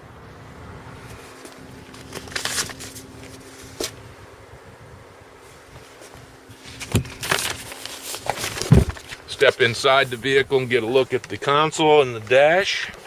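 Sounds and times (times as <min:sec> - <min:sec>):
rustling: 0:01.0 - 0:04.0, 0:05.4 - 0:11.5.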